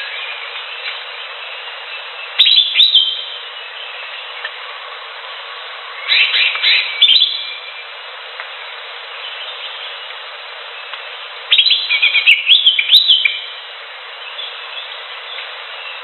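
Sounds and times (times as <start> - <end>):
bird whistling song: 0.0 - 4.3, 6.0 - 7.8, 11.5 - 13.6
steady background hiss: 0.0 - 16.0.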